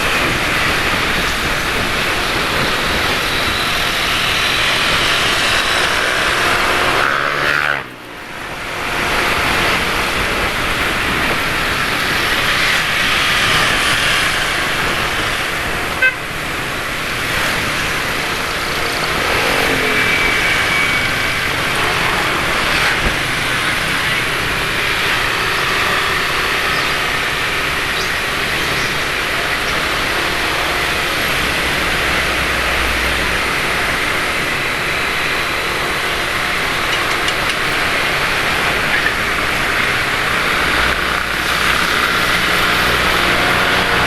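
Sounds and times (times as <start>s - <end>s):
passing vehicle engines: 0.0s - 44.0s
wind and road noise: 0.0s - 44.0s
vehicle horn toot: 16.0s - 16.3s.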